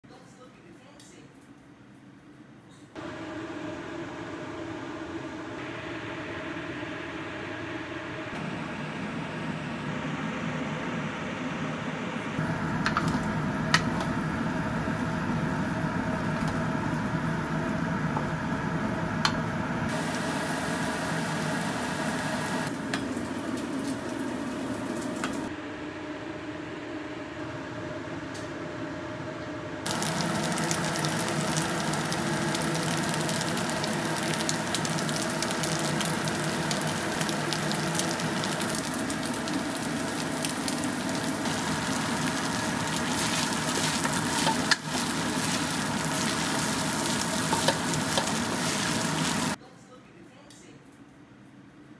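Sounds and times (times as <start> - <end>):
rice sizzling in a wok: 19.9 - 25.5, 29.9 - 49.6.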